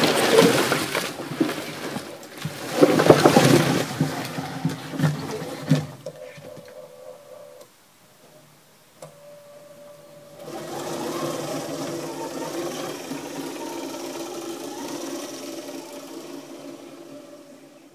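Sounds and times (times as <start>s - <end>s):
small motor whirring: 9.0s - 17.9s.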